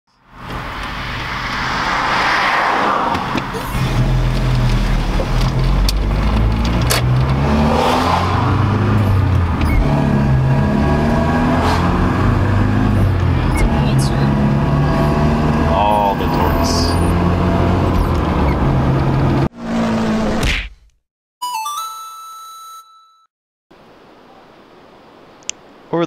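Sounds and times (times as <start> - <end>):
car engine accelerating: 0.3 - 20.4.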